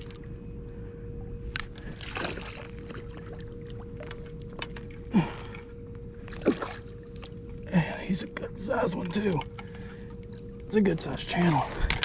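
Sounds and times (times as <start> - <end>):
low hum and rumble: 0.0 - 12.0
fish splashing in water: 1.9 - 4.2.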